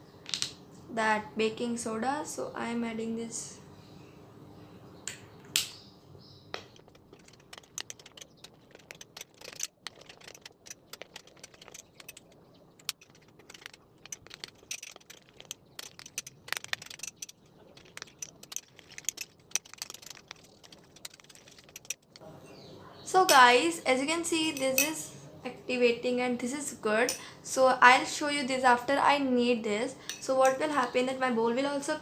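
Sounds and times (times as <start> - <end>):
slime stirred in a bowl: 6.8 - 22.2.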